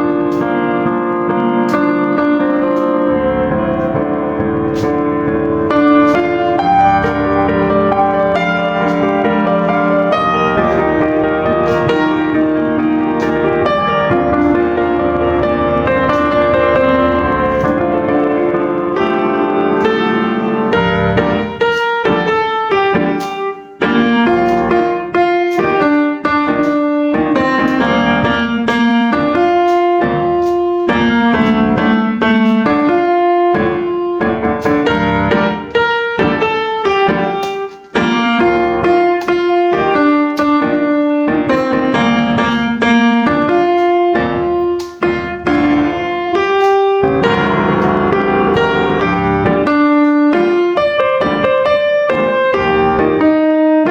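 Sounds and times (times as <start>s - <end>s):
piano music: 0.0s - 53.9s.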